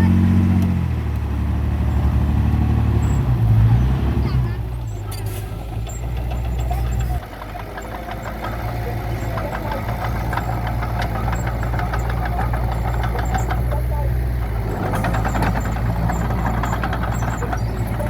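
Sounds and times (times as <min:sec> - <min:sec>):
model machine engine hum: 0:01.2 - 0:18.0
busy clatter of small clicks: 0:05.9 - 0:18.0.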